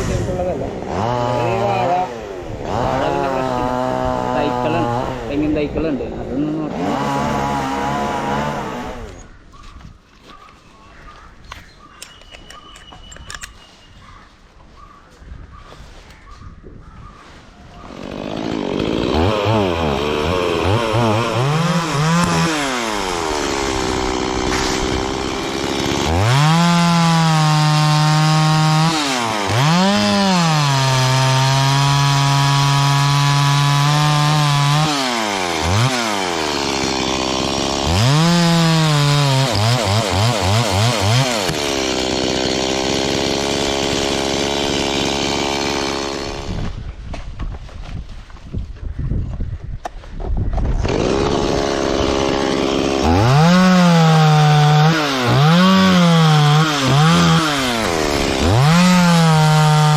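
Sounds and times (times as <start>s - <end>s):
chainsaw revving while cutting: 0.2s - 9.2s, 17.8s - 46.7s, 50.8s - 59.9s.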